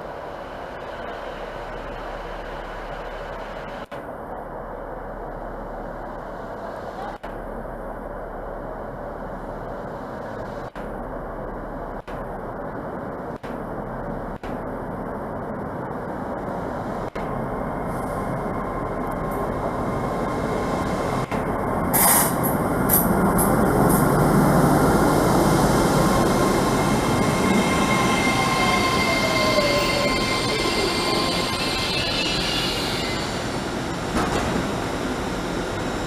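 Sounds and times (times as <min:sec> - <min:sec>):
train passing: 0:14.0 - 0:36.0
falling whine: 0:17.2 - 0:36.0
high hiss: 0:21.9 - 0:34.0.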